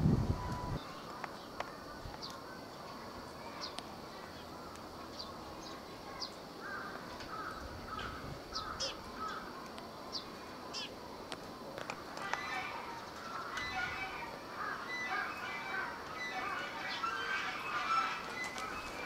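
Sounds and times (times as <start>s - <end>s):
harsh caw-like bird calls: 6.6s - 9.6s, 12.2s - 19.0s
high bird chirps: 12.2s - 19.0s.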